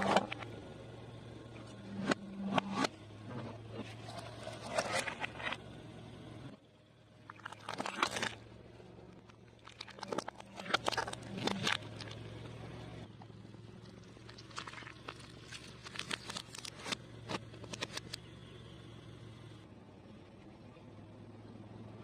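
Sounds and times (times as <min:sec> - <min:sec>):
steady low hum: 0:00.0 - 0:22.0
snacks crackling under a tyre: 0:09.2 - 0:12.5, 0:13.8 - 0:18.2.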